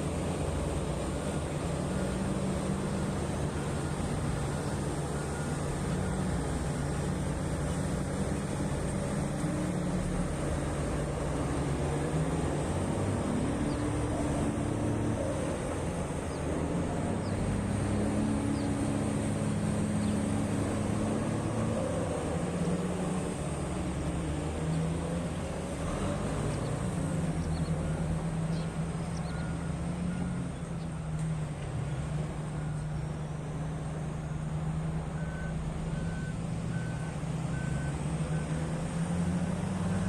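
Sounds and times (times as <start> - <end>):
heavy diesel machinery running: 0.0 - 40.0
faint reversing alarm beeping: 1.8 - 7.4, 27.2 - 40.0.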